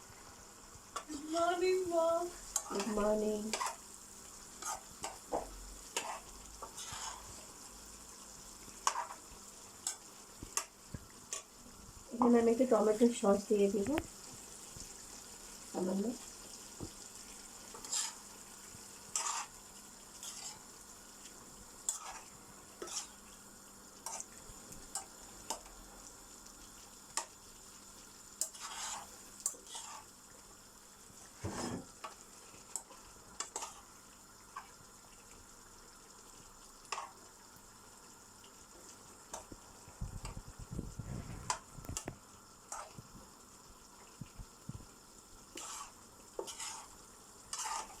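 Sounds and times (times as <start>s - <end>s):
faint sizzle: 0.0s - 48.0s
spoon scraping a pot: 2.6s - 3.8s, 4.6s - 5.2s, 5.9s - 7.4s, 8.8s - 9.2s, 17.7s - 18.2s, 19.1s - 19.6s, 20.2s - 20.6s, 21.8s - 23.2s, 28.4s - 30.1s, 31.4s - 32.2s, 32.8s - 33.9s, 36.9s - 37.1s, 42.7s - 43.0s, 45.5s - 48.0s.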